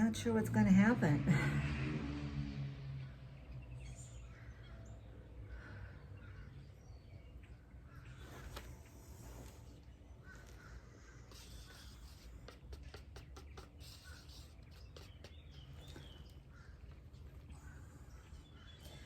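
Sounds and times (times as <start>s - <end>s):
low outdoor rumble: 0.0s - 19.0s
crow cawing: 10.2s - 11.8s.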